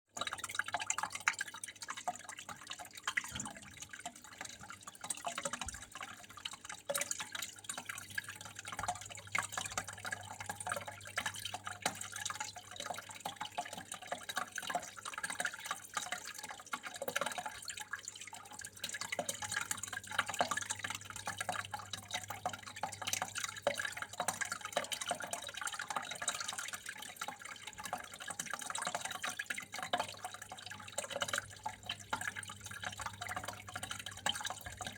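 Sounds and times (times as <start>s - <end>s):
water trickling and dripping: 0.1s - 34.9s.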